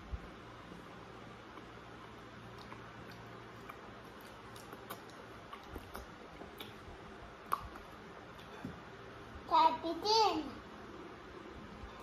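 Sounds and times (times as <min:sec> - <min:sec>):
man chewing with wet mouth clicks: 0:01.4 - 0:08.6.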